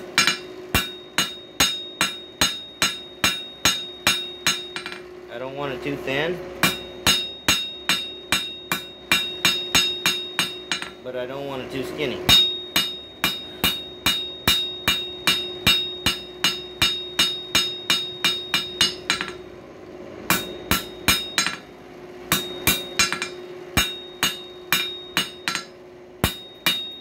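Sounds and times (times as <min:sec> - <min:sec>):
hammer striking steel on anvil: 0:00.0 - 0:05.1, 0:06.6 - 0:19.6, 0:20.2 - 0:27.0.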